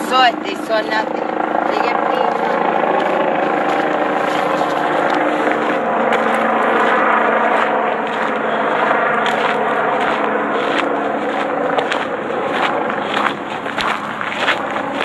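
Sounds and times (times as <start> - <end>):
engine drone: 0.0 - 15.0
low hum: 0.0 - 15.0.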